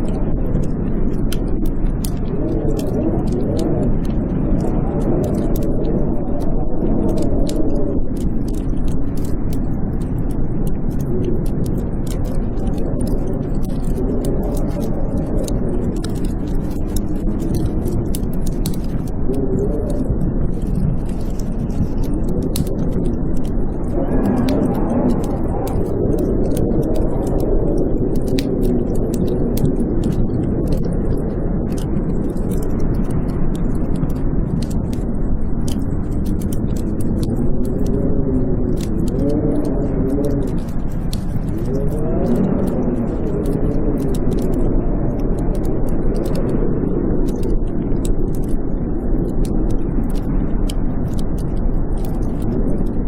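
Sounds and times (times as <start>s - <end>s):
blizzard wind howling: 0.0s - 53.0s
wood fire crackling: 0.0s - 53.0s.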